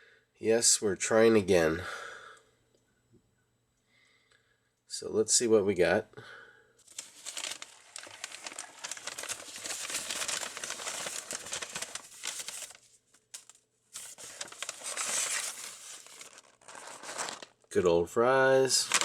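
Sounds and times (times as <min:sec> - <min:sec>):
paper bag crinkling: 0:06.8 - 0:17.7, 0:18.8 - 0:19.0.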